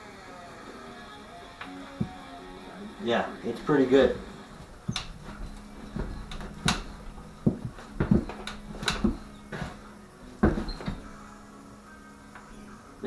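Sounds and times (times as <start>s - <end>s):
metal knocks and clanks: 3.6s - 11.2s.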